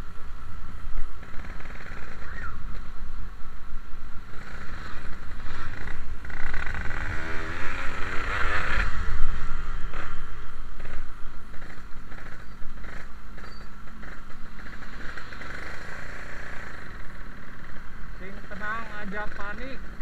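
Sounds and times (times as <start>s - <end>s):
wind rumble on microphone: 0.0s - 15.8s
two-stroke motorcycle engine: 4.2s - 20.0s.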